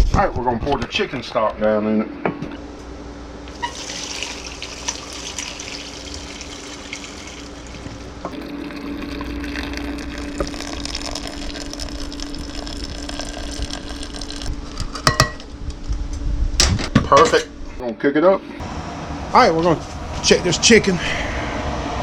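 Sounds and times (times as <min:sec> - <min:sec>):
steady low hum: 0:00.0 - 0:22.0
liquid pouring into a pot: 0:03.6 - 0:14.7.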